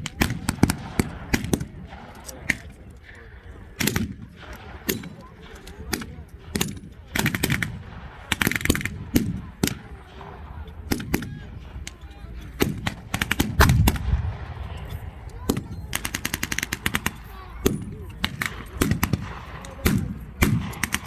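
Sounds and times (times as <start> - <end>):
single rifle shots: 0.0 - 2.9, 12.6 - 21.0
machine-gun bursts: 15.9 - 21.0.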